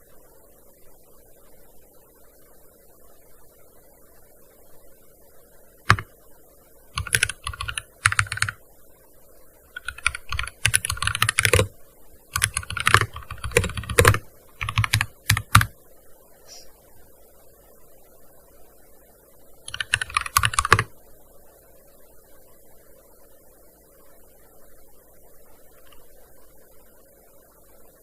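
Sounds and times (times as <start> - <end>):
keyboard typing: 5.9 - 6.1, 7.0 - 8.6, 9.7 - 11.7, 12.3 - 15.7, 19.7 - 20.9.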